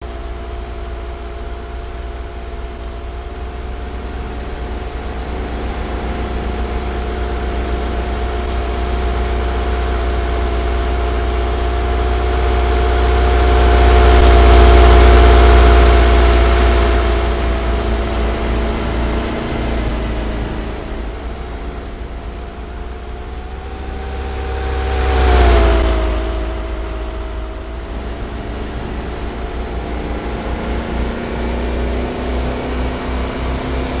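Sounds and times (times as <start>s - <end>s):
van engine droning: 0.0s - 34.0s.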